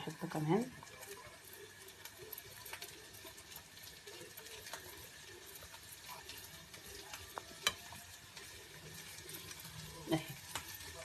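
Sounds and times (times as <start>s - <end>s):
spoon scraping in baking dish: 2.2s - 9.6s.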